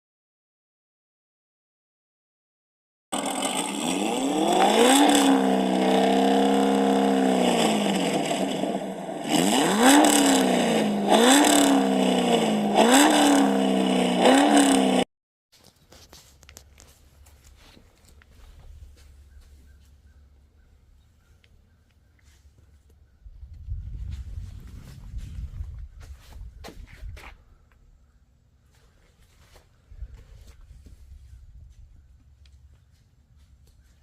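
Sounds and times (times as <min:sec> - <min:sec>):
car engine revving: 0:03.2 - 0:15.0.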